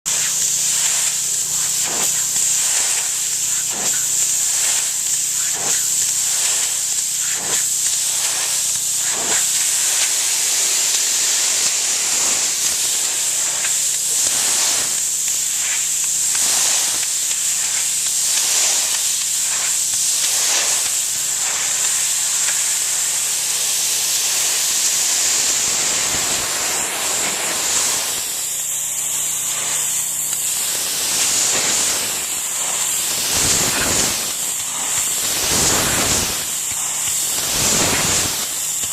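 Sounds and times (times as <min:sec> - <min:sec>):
pressure washer spraying brick: 0:00.1 - 0:38.9.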